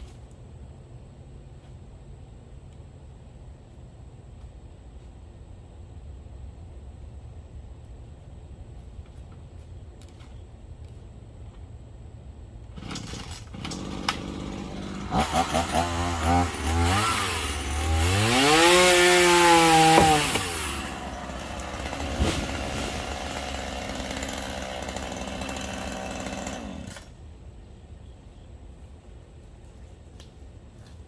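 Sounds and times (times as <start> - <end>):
chainsaw revving and idling: 12.8 - 27.2.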